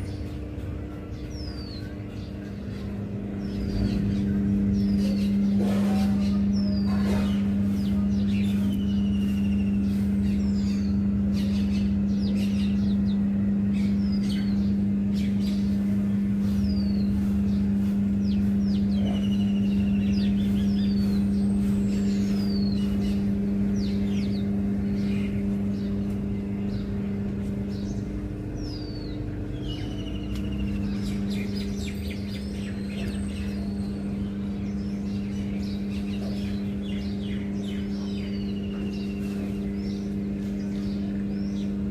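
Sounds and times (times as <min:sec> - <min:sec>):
loud low machine hum: 0:00.0 - 0:41.9
small birds chirping: 0:00.0 - 0:41.9.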